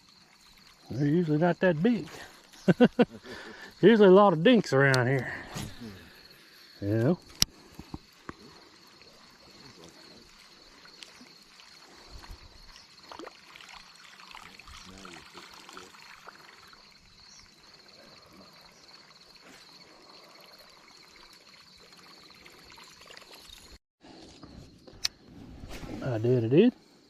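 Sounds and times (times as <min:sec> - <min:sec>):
small ticks: 0:07.0 - 0:09.1, 0:10.3 - 0:13.3.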